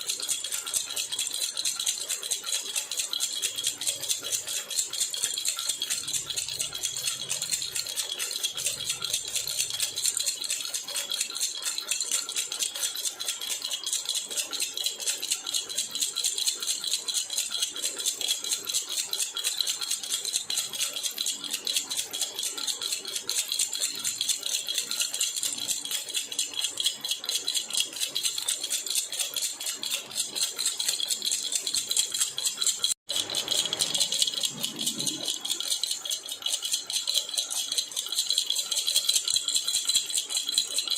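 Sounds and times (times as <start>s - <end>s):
baby rattle shaken: 16.7s - 40.9s.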